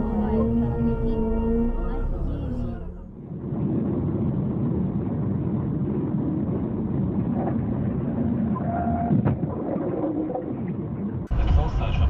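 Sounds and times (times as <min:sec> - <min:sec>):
car road and engine noise: 0:00.0 - 0:09.4.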